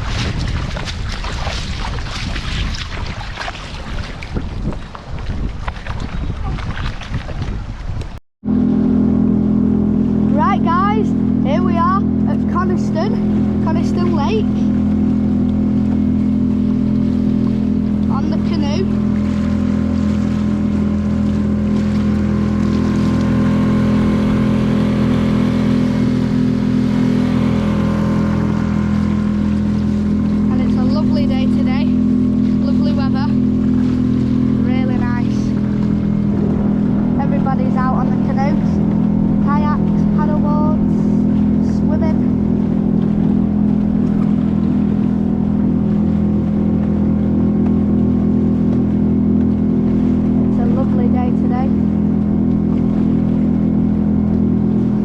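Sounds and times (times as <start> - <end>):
boat engine drone: 0.0 - 55.0.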